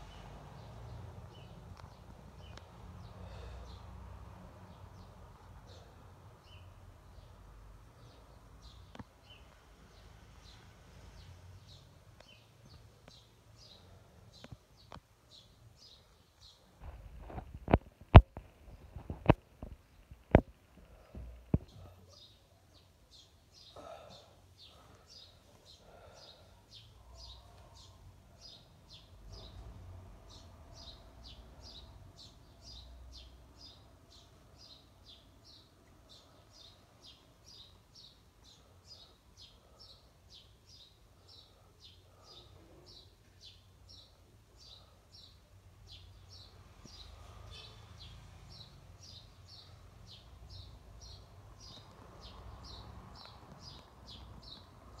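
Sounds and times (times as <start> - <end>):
bird chirping: 4.6 - 55.0.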